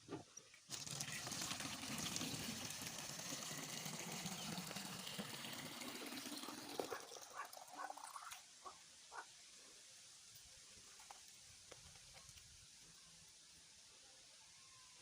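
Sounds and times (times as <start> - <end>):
water running into plastic bottle: 0.0 - 8.4.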